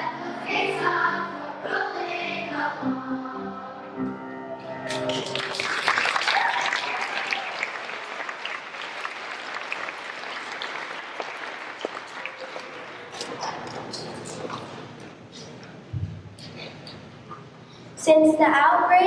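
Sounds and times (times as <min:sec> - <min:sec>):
audience applause: 0:04.9 - 0:14.5.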